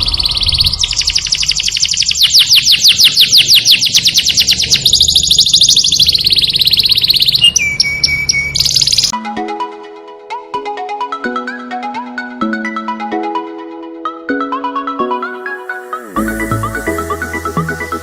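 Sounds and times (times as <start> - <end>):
canary singing: 0.0 - 9.1, 15.7 - 18.0.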